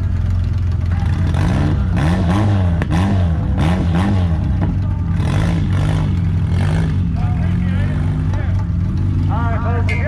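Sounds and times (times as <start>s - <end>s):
car engines idling: 0.0s - 10.0s
engine revving up and down: 1.0s - 9.6s.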